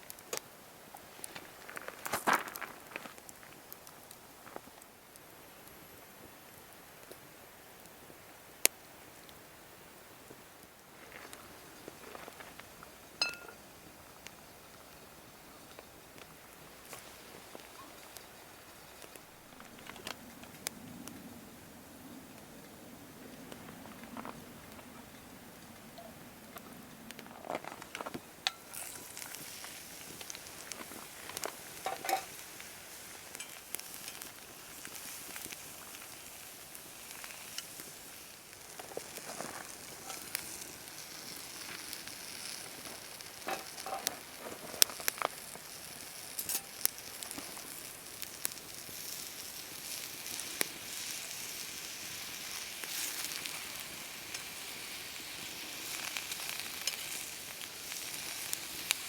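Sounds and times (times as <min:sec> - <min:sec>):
food sizzling in a frying pan: 0:27.8 - 0:59.0.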